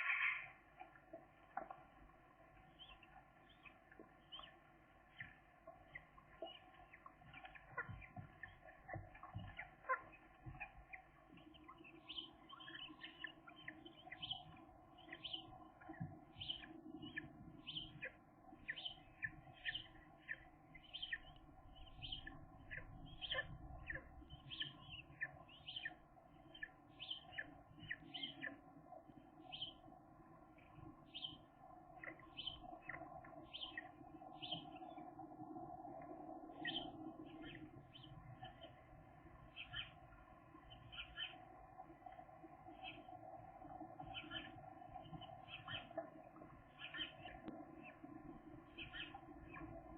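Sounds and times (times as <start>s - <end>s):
gull chicks peeping: 2.7s - 28.6s, 44.0s - 48.0s, 48.6s - 49.9s.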